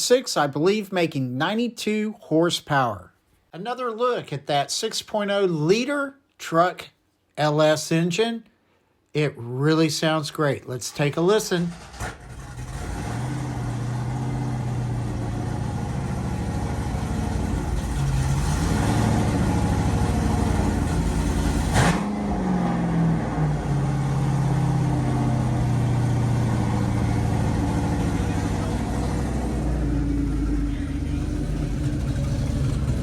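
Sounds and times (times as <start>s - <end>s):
truck engine idling: 11.7s - 21.8s, 23.1s - 33.0s
engine throttle blips: 11.7s - 33.0s.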